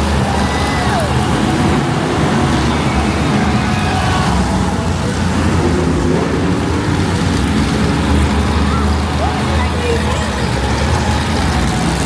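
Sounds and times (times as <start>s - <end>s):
loud truck engines droning: 0.0s - 12.0s.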